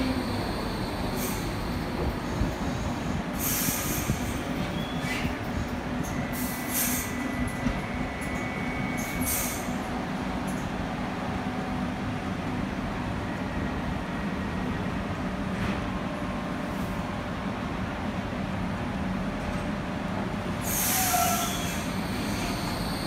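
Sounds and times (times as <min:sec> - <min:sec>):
train wheels rumbling on rail: 0:00.0 - 0:23.0
high wheel squeal: 0:20.7 - 0:23.0.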